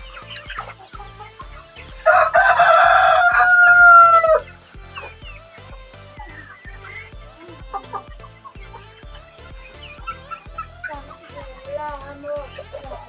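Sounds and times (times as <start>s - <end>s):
background music with beat: 0.0s - 13.0s
rooster crowing: 2.0s - 4.5s.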